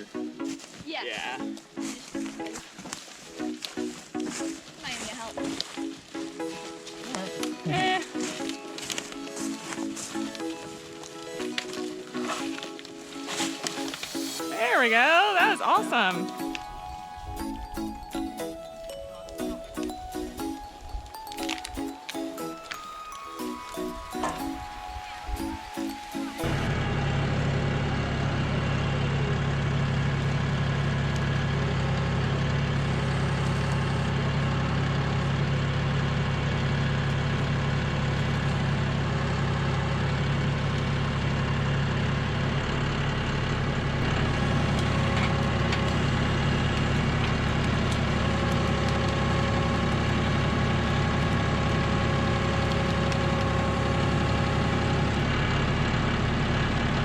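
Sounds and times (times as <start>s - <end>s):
tractor diesel engine running: 26.4s - 57.0s.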